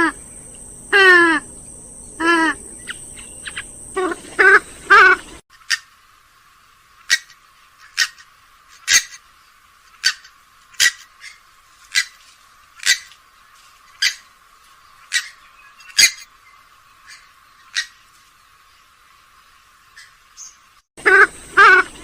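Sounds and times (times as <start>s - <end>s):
bird giving harsh sharp calls: 7.1s - 8.2s, 10.0s - 12.2s, 12.8s - 13.1s, 21.0s - 22.0s.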